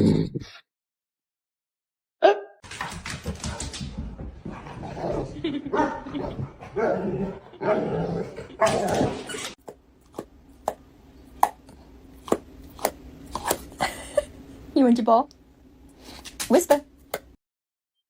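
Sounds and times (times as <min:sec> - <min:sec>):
dog barking: 0:02.2 - 0:02.6.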